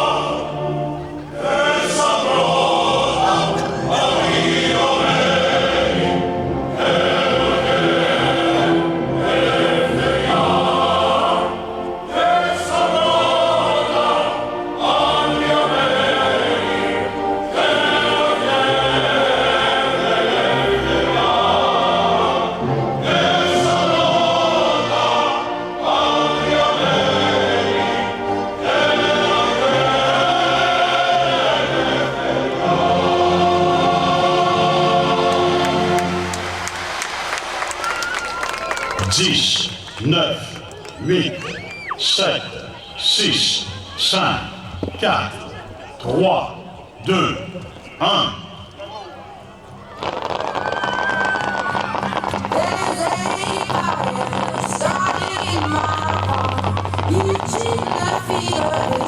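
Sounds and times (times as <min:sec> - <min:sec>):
choir singing: 0:00.0 - 0:37.7, 0:51.8 - 0:59.0
musical accompaniment: 0:00.0 - 0:40.0, 0:48.6 - 0:59.0.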